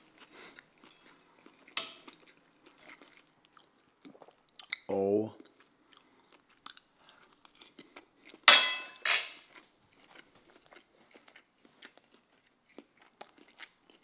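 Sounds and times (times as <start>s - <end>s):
person chewing crispy food: 0.0s - 8.5s, 9.4s - 14.0s.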